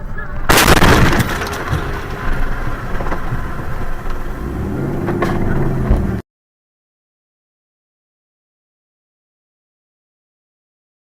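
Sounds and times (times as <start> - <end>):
car engine and road rumble: 0.0 - 6.2.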